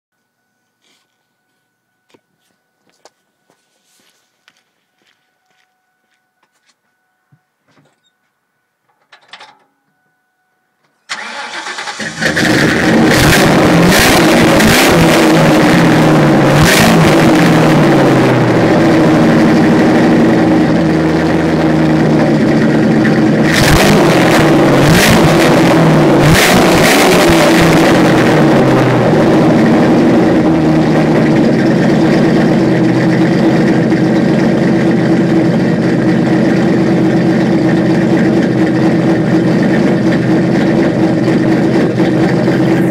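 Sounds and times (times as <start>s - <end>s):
car engine revving: 11.1s - 42.9s.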